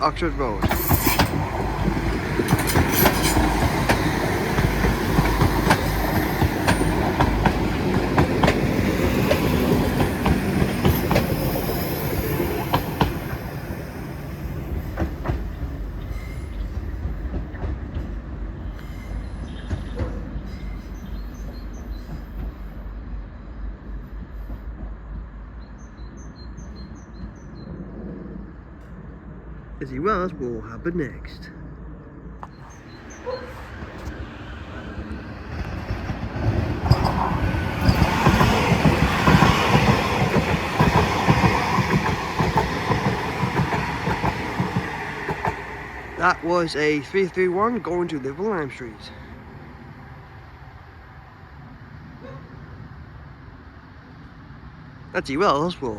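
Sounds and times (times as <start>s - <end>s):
wheels clicking over rail joints: 0.0s - 13.6s, 35.0s - 48.7s
diesel train passing: 0.0s - 55.9s
high wheel squeal: 36.5s - 40.0s.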